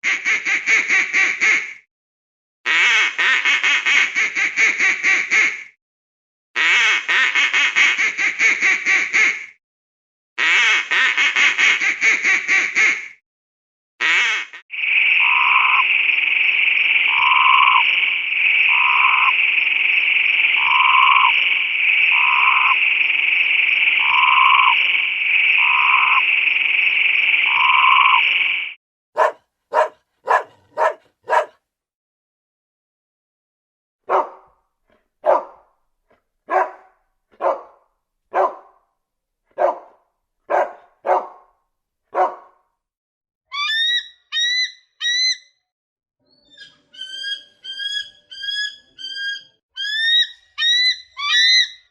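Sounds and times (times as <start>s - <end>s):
lower repeating animal call: 14.7s - 26.4s, 27.5s - 28.3s
rapid pulsed animal calls: 14.7s - 28.6s.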